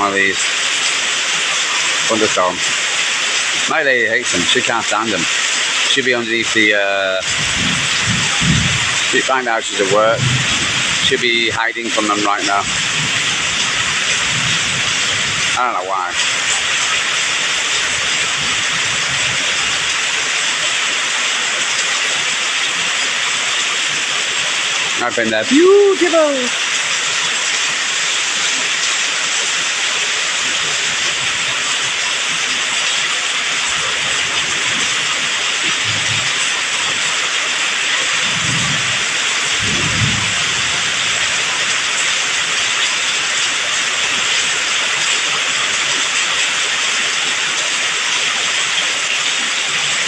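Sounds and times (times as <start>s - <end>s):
heavy rain hissing: 0.0s - 50.0s
low rumbles: 7.2s - 11.6s.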